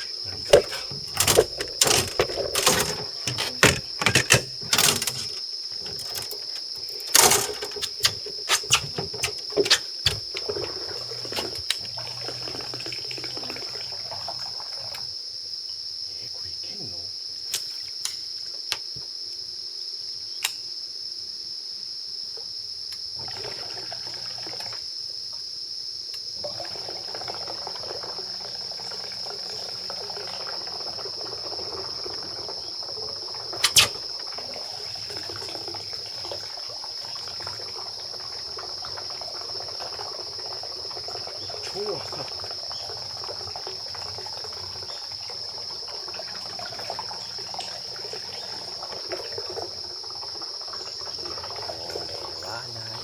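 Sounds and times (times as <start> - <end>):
sharp knocks and clicks: 0.4 - 10.5.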